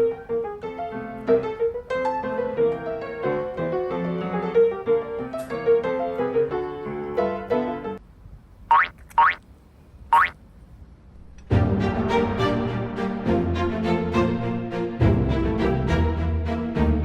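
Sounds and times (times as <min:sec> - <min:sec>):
gentle piano music: 0:00.0 - 0:08.0.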